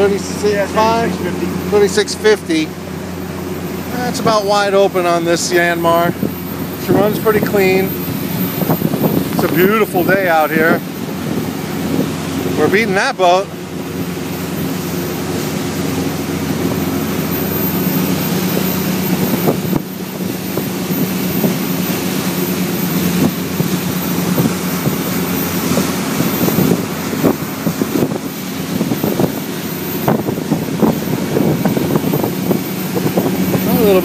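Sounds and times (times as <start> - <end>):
boat diesel engine drone: 0.0 - 34.0
rushing water: 0.0 - 34.0
wind buffeting microphone: 0.0 - 34.0.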